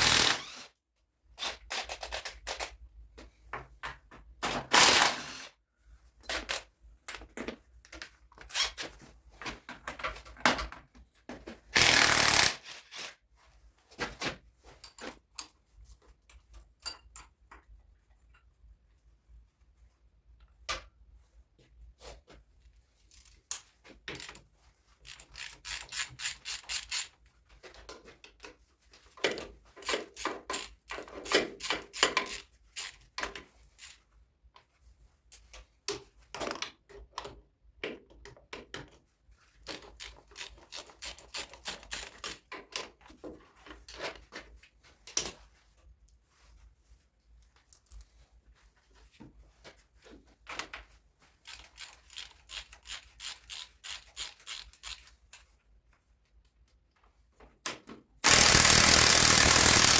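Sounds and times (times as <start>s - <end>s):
hand tools clicking on metal: 58.2s - 59.9s.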